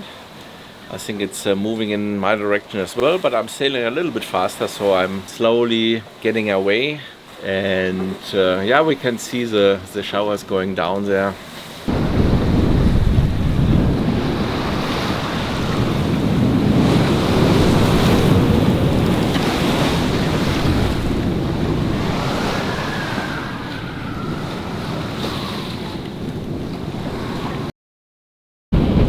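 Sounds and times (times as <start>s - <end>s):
sea waves rushing: 0.0s - 27.7s, 28.8s - 29.0s
wind buffeting microphone: 11.9s - 27.7s.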